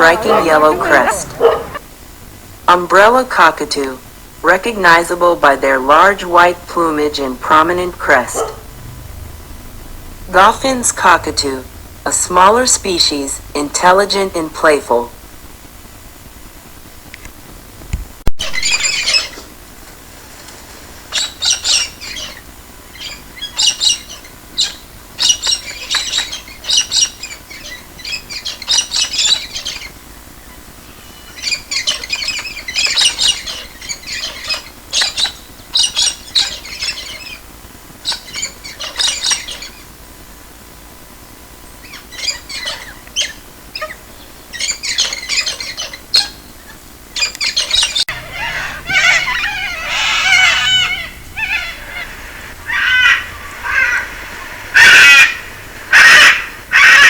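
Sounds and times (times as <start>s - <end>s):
cockatoos screeching: 0.0s - 1.8s, 47.2s - 57.0s.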